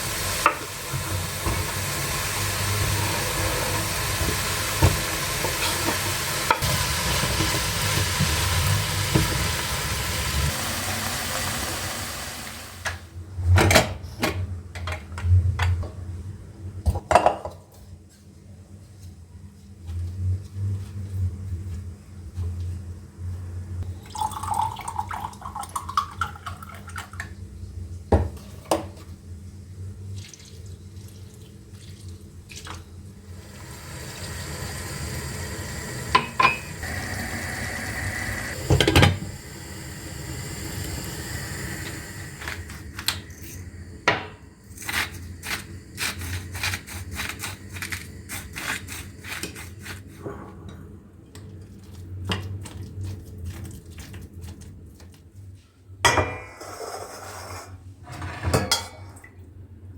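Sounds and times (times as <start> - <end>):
cookware and utensils clinking: 2.8 - 6.7, 36.1 - 36.9, 56.0 - 59.3.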